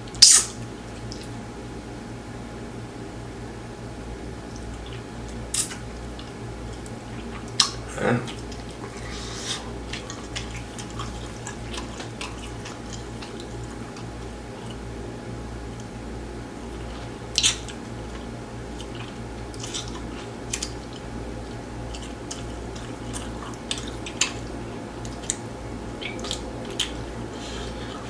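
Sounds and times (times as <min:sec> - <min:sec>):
steady low hum: 0:00.0 - 0:28.0
person biting and chewing: 0:00.2 - 0:01.3, 0:04.7 - 0:14.8, 0:16.7 - 0:21.1, 0:26.0 - 0:28.0
wet mouth clicks: 0:04.5 - 0:14.8, 0:26.0 - 0:28.0.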